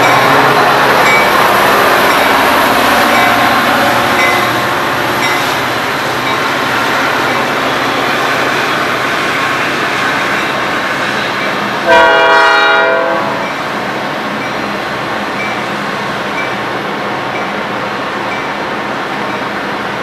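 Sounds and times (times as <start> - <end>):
train rumble and rail noise: 0.0 - 20.0
train air horn blast: 11.8 - 13.4.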